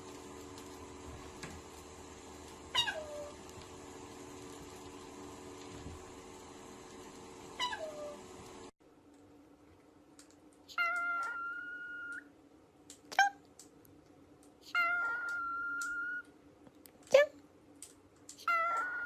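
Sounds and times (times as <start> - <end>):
pet calling: 2.7 - 3.4, 7.6 - 8.2.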